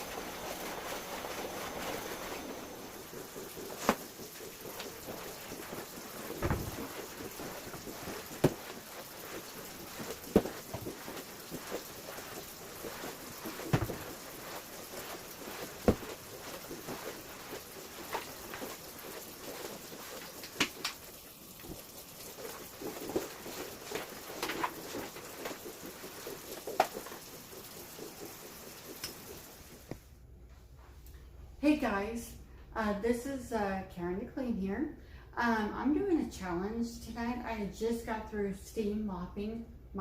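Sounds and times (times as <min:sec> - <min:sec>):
floor tool swishing and scraping: 0:00.0 - 0:31.0.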